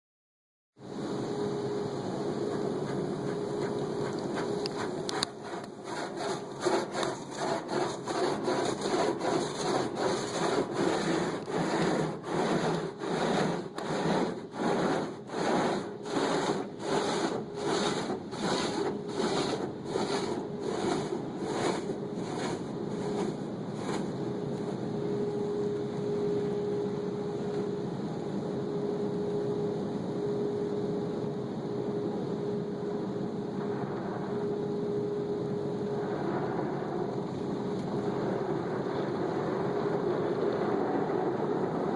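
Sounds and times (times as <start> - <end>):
car wash machinery hum: 0.8 - 41.9
brushes swishing over car: 2.4 - 24.8.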